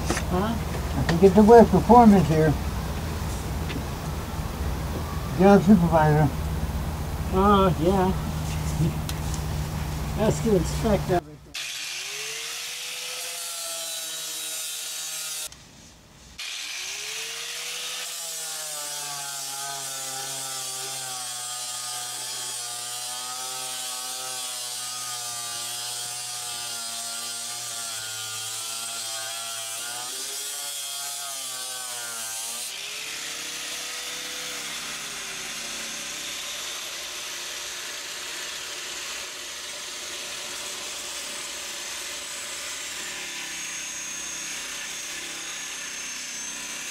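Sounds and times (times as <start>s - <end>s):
angle grinder grinding fiberglass: 7.3s - 15.6s, 16.4s - 46.9s.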